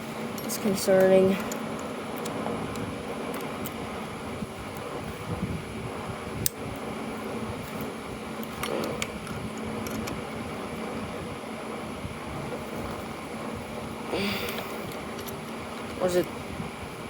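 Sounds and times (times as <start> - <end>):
fan-like background hum: 0.0 - 17.0.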